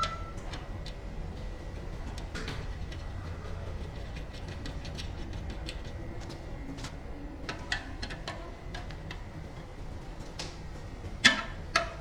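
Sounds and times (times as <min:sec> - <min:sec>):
tools clicking and tapping: 0:00.0 - 0:01.0.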